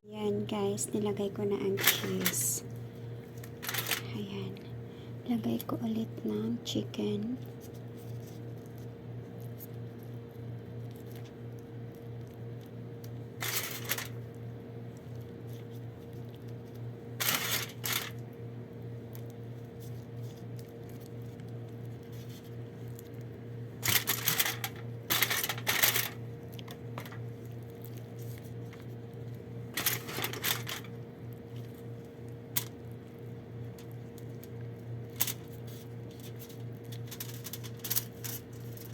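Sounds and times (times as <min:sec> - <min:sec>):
low electrical hum: 0:00.0 - 0:38.9
rustling and clinking kitchen items: 0:23.8 - 0:27.2, 0:29.8 - 0:31.0.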